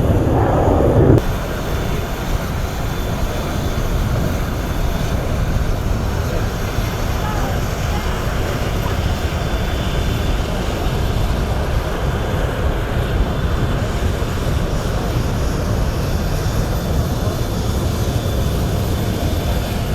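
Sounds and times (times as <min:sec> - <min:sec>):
jet fighter engines roaring: 0:00.0 - 0:10.7.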